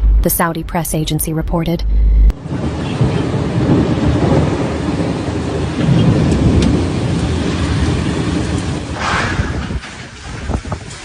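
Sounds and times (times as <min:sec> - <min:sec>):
thunder rumbling: 0:01.8 - 0:11.0
heavy rain falling: 0:02.4 - 0:11.0.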